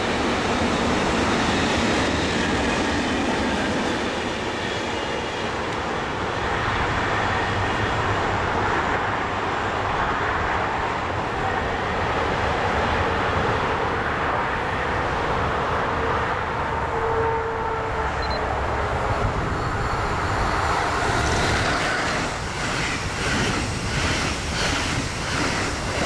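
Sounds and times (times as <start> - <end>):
freight train rolling past: 0.0 - 26.0.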